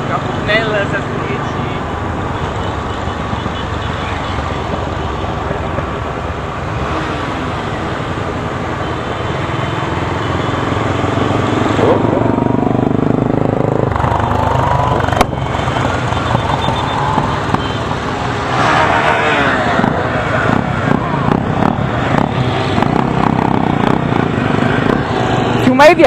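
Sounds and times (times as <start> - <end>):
motorcycle engines running: 0.0 - 26.0
road noise: 0.0 - 26.0.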